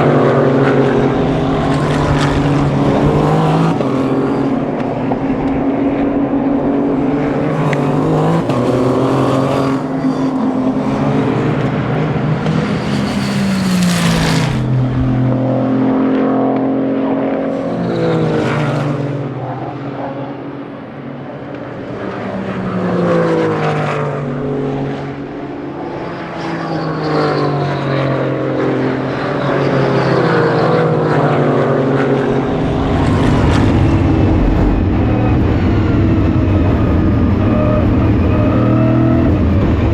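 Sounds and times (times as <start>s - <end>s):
race car engines accelerating: 0.0s - 39.9s.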